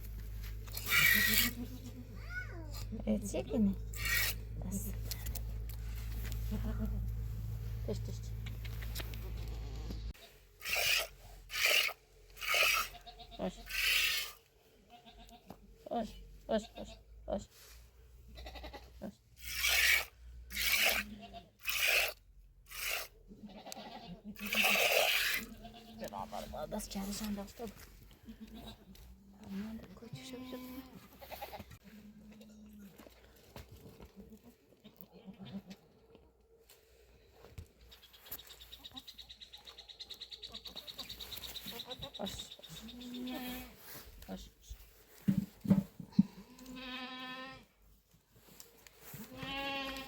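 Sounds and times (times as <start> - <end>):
goats bleating: 0.8 - 2.4, 12.4 - 14.2, 18.4 - 18.9, 20.6 - 22.0, 22.8 - 26.2, 46.3 - 47.6, 49.2 - 50.0.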